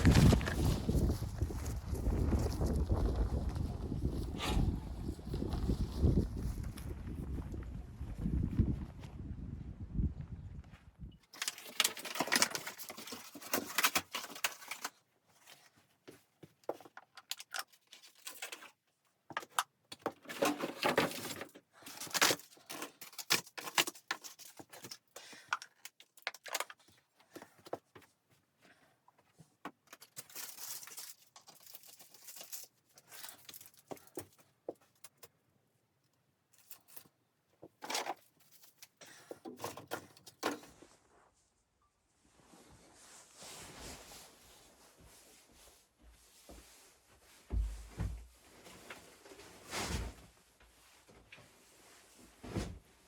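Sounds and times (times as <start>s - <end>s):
gear rustling and crinkling: 0.0s - 7.4s, 11.2s - 35.4s, 36.5s - 41.6s.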